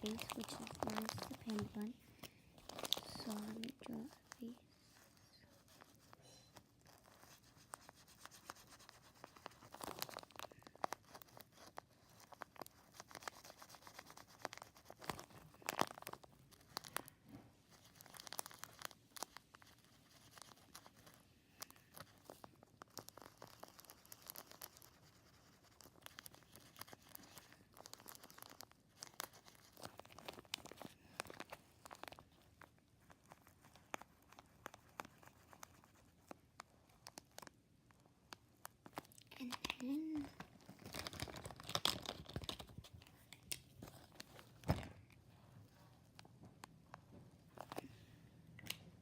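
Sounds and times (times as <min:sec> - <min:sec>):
marker scratching on plastic: 0:00.0 - 0:01.9, 0:02.8 - 0:16.9, 0:21.8 - 0:37.2
plastic bag crinkling: 0:00.0 - 0:05.1, 0:08.8 - 0:37.5, 0:38.4 - 0:45.1.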